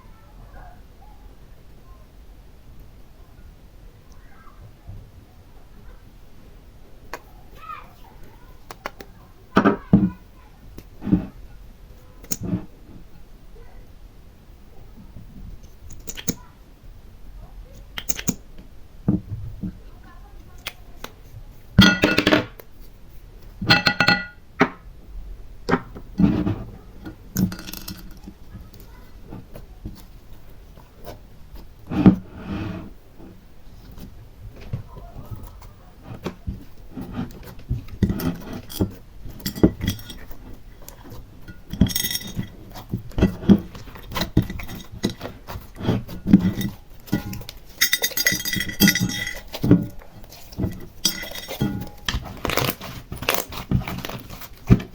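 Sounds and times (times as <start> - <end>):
hard decorations clinking: 21.8 - 22.5, 23.7 - 24.4, 27.3 - 29.0, 37.0 - 54.9.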